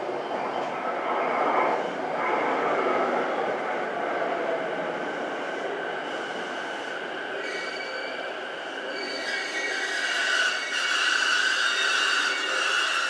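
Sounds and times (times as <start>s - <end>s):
electric train slowing: 4.3s - 13.0s.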